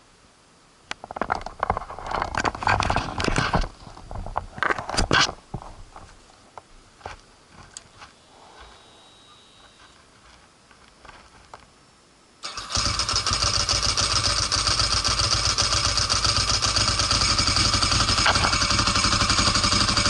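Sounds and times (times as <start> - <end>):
rustling and scraping handling noise: 1.0 - 11.8.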